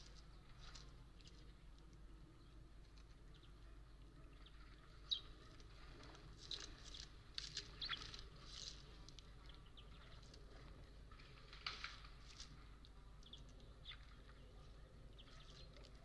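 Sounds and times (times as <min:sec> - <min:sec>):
low steady hum: 0:00.0 - 0:16.0
faint bird chirps: 0:02.3 - 0:10.9, 0:12.4 - 0:16.0.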